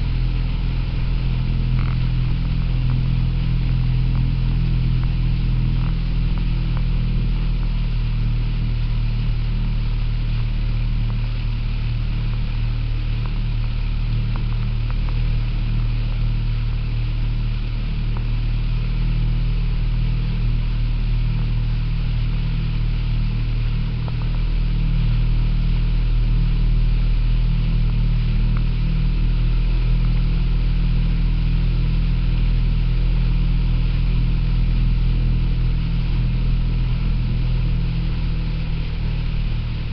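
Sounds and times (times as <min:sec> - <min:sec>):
motorboat engine droning: 0:00.0 - 0:39.9.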